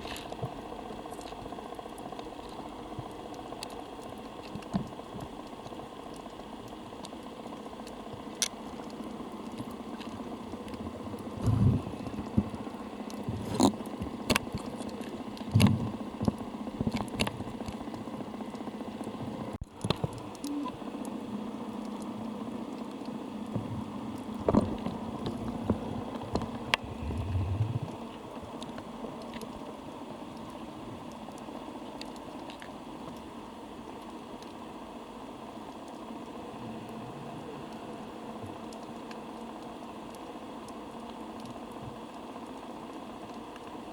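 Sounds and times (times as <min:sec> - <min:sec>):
dull low thumps: 0:26.7 - 0:28.0.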